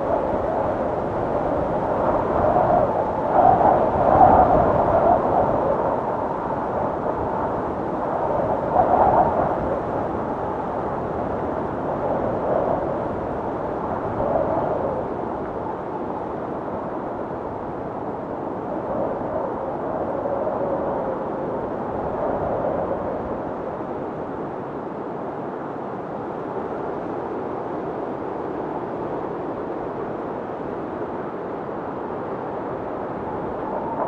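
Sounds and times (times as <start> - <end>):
blizzard wind blowing: 0.0 - 34.0
howling wind whistle: 0.0 - 34.0.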